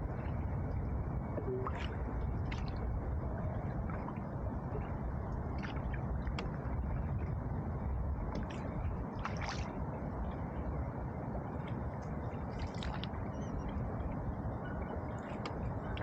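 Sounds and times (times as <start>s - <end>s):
paddle splashing water: 1.4s - 3.0s, 8.3s - 9.8s, 12.5s - 13.1s.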